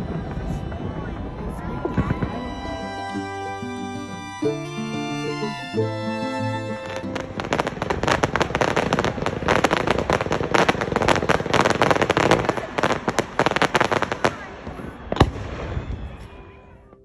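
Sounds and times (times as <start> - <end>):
fireworks bangs and crackles: 0.0 - 3.0, 6.8 - 16.7.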